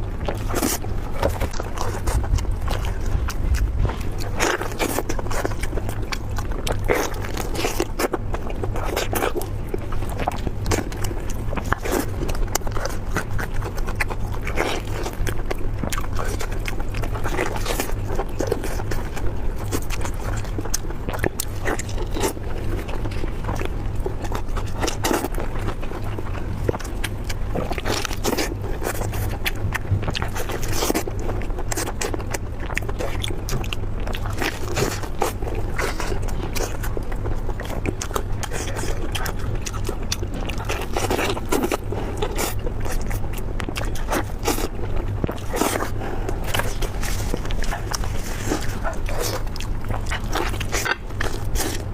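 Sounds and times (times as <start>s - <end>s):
person chewing food: 0.0s - 51.9s
steady low hum: 0.0s - 51.9s.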